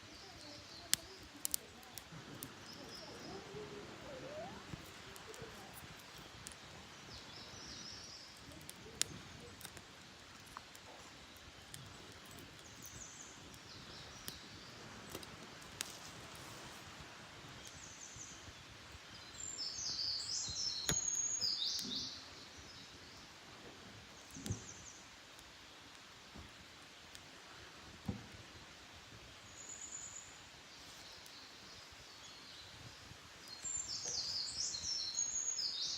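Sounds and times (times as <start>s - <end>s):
songbirds singing: 0.0s - 15.9s, 17.4s - 26.0s, 29.3s - 35.9s
campfire pops: 0.1s - 19.6s, 20.2s - 22.2s, 23.7s - 28.6s.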